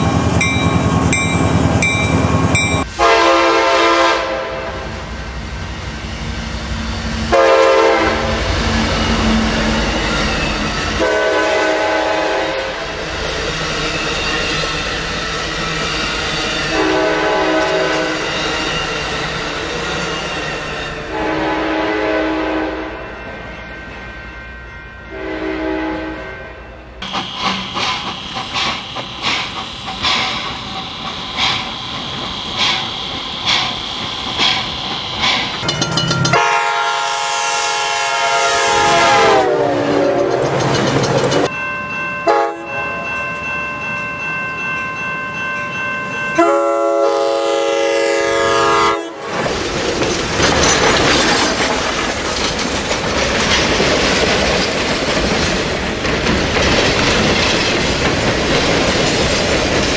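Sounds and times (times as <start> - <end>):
train passing rumble: 0.0 - 59.9
train air horn blasts: 2.8 - 5.1, 7.3 - 8.5, 11.0 - 12.9, 16.7 - 18.2, 21.1 - 23.0, 25.1 - 27.7, 36.3 - 40.4, 42.3 - 42.7, 46.4 - 49.3
wheels clicking over rail joints: 27.0 - 36.5, 39.9 - 41.5, 49.3 - 59.9.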